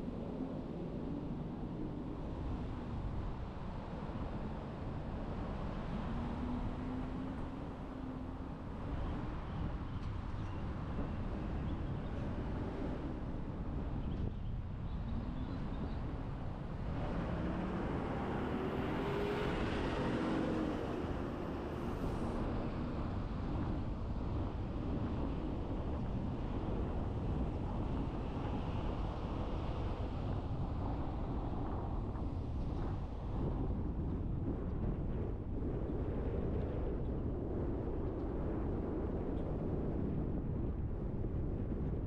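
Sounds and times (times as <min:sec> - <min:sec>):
road and tyre noise: 0:00.0 - 0:42.0
car engine hum: 0:16.8 - 0:22.8.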